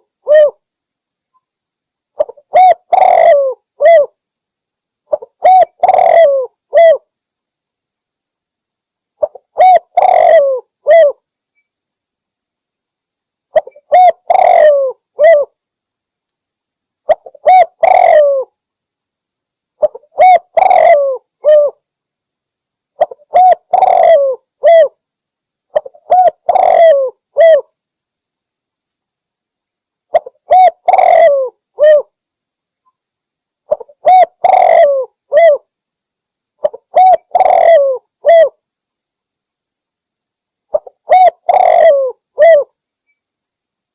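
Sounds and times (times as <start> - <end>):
dove cooing: 0.0 - 0.6, 2.2 - 4.2, 5.1 - 7.0, 9.2 - 11.2, 13.5 - 15.5, 17.1 - 18.5, 19.8 - 21.8, 23.0 - 25.0, 25.7 - 27.7, 30.1 - 32.1, 33.7 - 35.6, 36.6 - 38.6, 40.7 - 42.7.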